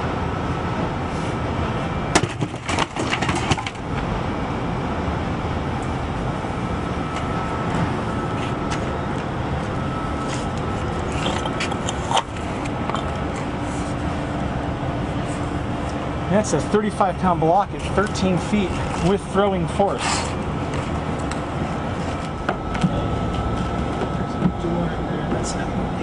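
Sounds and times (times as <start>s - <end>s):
low background rumble: 0.0s - 26.0s
block tumbling with clattering knocks: 2.2s - 3.8s.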